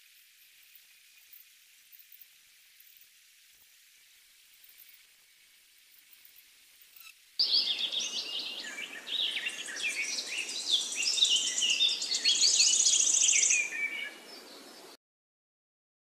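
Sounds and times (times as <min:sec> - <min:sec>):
birds chirping and whistling: 0:07.4 - 0:14.5.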